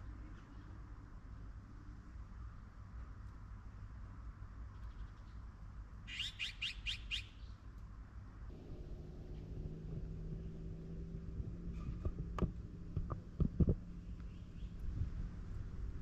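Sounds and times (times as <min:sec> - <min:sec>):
low steady hum: 0:08.3 - 0:16.0
low background rumble: 0:08.4 - 0:16.0.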